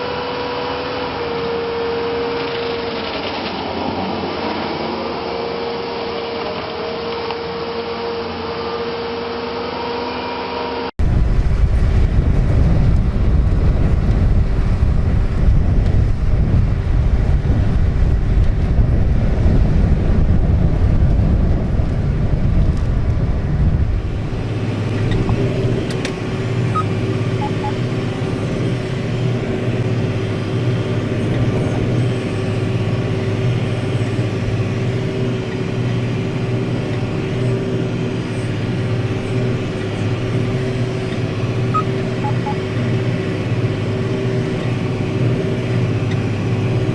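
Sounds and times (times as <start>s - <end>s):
machine engine running: 0.0s - 9.9s, 11.0s - 46.9s.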